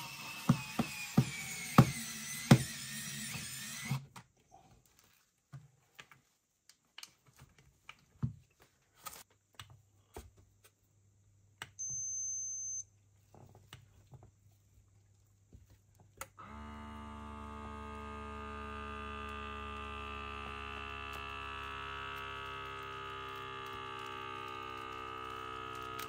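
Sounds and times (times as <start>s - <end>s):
small electric motor whirring: 0.0s - 4.0s, 16.4s - 26.0s
high-pitched electronic beep: 11.8s - 12.8s.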